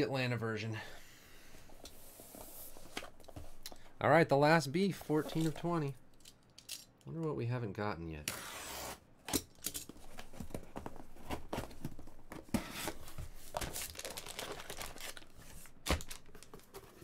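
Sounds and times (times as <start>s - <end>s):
wrapper crackling and rustling: 13.7s - 16.6s.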